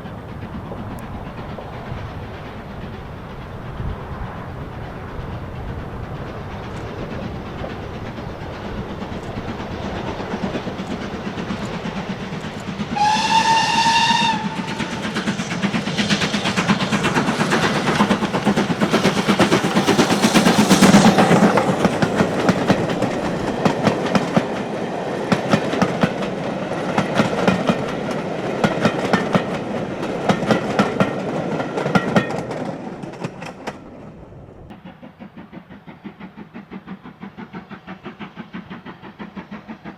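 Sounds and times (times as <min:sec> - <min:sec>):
train wheels clacking: 0:00.0 - 0:39.9
train whistle: 0:12.9 - 0:15.2.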